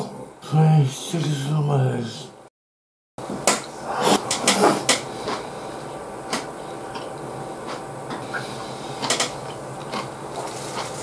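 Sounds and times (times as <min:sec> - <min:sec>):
person chewing crunchy food: 0:06.9 - 0:11.0.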